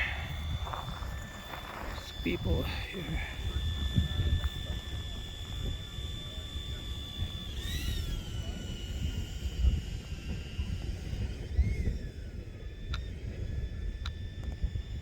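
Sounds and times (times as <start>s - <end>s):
volcano rumbling: 0.0s - 3.4s
faint high whine: 0.0s - 15.0s.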